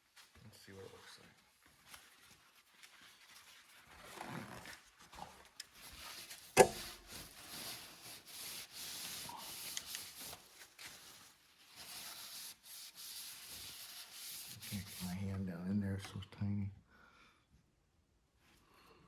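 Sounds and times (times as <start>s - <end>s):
rubbing inside metal cylinder: 11.7s - 15.2s.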